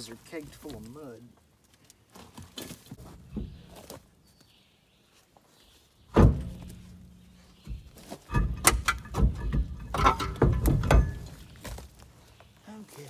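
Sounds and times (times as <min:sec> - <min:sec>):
heavy thud of truck wheel: 0:06.1 - 0:07.1, 0:07.7 - 0:12.0
low ringing hum: 0:08.3 - 0:11.9.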